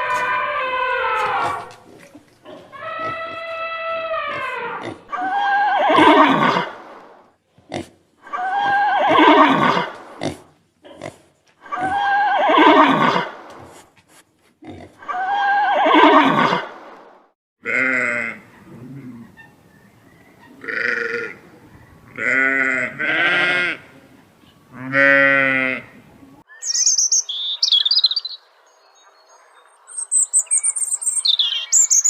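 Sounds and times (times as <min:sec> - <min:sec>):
animal quavering cry: 0:00.0 - 0:01.8, 0:02.4 - 0:06.9, 0:08.2 - 0:10.0, 0:15.0 - 0:16.7.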